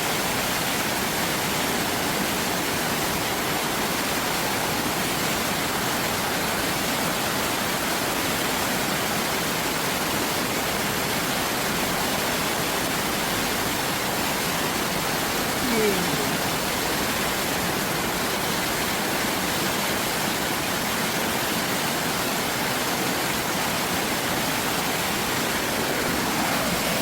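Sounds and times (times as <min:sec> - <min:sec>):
stream rushing over rocks: 0:00.0 - 0:27.0.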